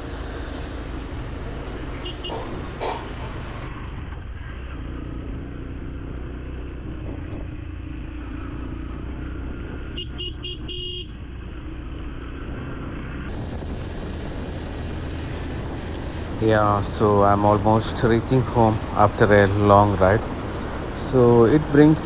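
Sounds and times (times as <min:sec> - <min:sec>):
motorcycle engine running: 0:00.0 - 0:22.0
road and wind noise: 0:00.0 - 0:22.0
vehicle horn beeping: 0:00.2 - 0:03.7, 0:10.0 - 0:11.1.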